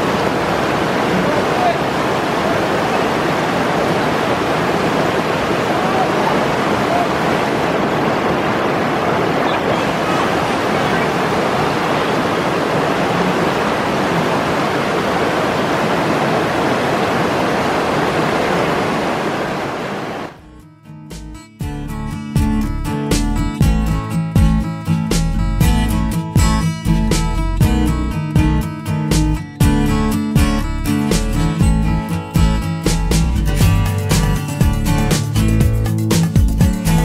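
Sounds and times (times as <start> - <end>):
white water rushing through rapids: 0.0 - 20.4.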